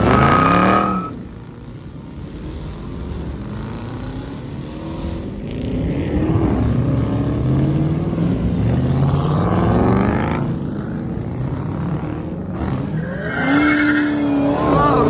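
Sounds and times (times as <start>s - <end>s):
car engine revving: 0.0s - 1.2s, 9.3s - 15.0s.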